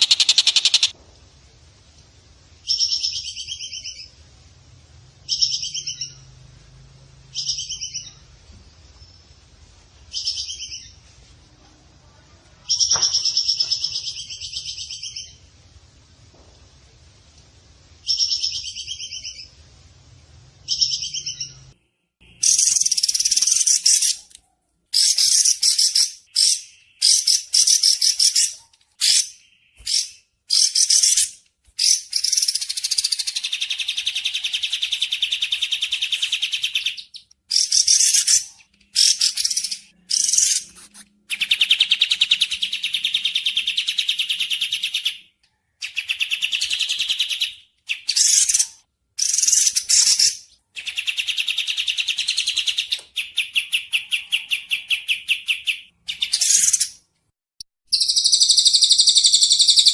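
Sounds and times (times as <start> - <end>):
bird calls: 0.0 - 1.0
buzzy bird calls with trill: 0.0 - 1.0, 22.4 - 24.3, 57.9 - 59.9.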